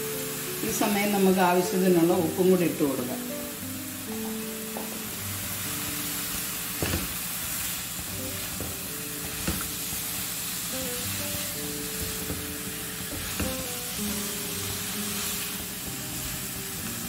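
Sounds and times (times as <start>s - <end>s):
background music with held notes: 0.0s - 17.0s
potatoes sizzling in oil: 0.0s - 17.0s
spatula knocking on pan: 4.1s - 5.1s, 6.8s - 7.2s, 11.9s - 13.7s.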